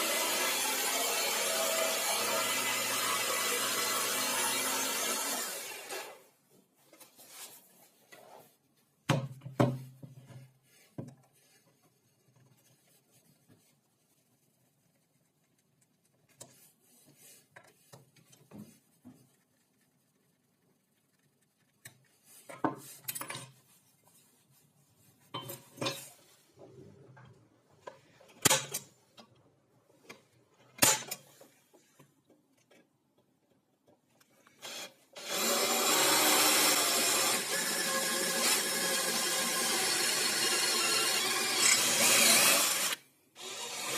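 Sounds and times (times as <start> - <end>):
power tool running: 0.0 - 6.2, 34.7 - 43.9.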